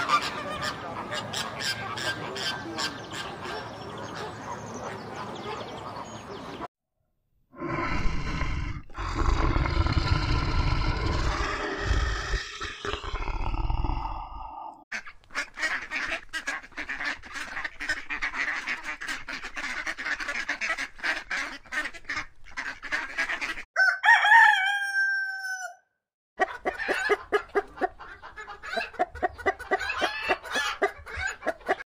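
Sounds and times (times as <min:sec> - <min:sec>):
ducks quacking: 0:00.0 - 0:06.6, 0:14.9 - 0:23.7, 0:26.4 - 0:31.8
rooster crowing: 0:23.8 - 0:25.9
rooster clucking: 0:26.4 - 0:31.8.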